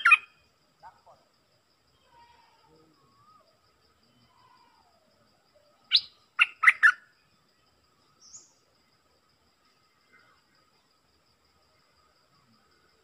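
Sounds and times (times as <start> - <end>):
songbird calls: 0.0 - 1.2, 2.0 - 8.7.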